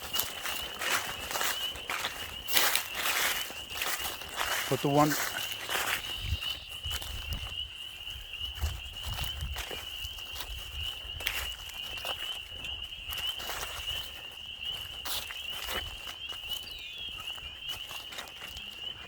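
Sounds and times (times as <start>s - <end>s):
footsteps through vegetation: 0.0s - 19.0s
wind rumble on microphone: 5.8s - 14.0s.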